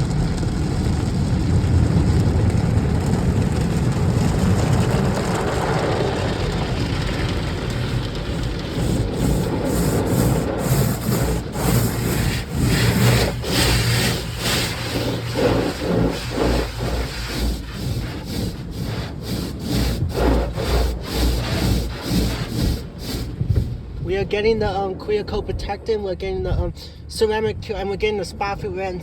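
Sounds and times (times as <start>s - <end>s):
car wash running: 0.0s - 28.9s
brushes scrubbing car bodywork: 6.2s - 24.4s.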